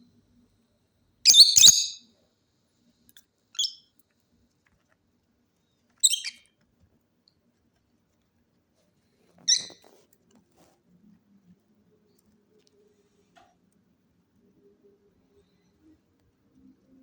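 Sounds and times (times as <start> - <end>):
parrot calling: 1.3 - 2.0, 6.0 - 6.4.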